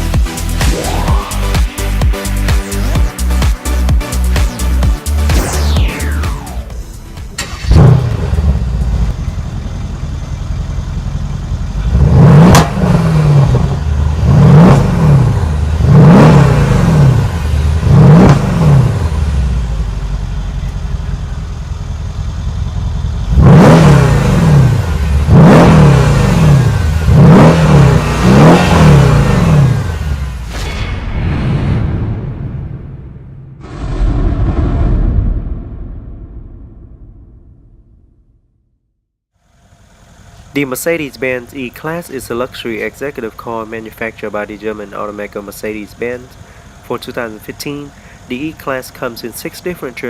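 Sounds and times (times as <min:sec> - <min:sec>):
car engine idling and revving: 0:00.0 - 0:30.6, 0:39.4 - 0:50.0.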